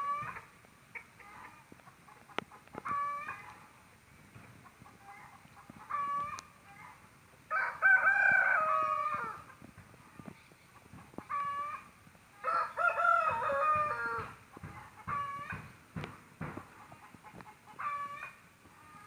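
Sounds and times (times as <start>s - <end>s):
rooster crowing: 7.5s - 9.4s, 12.4s - 14.4s.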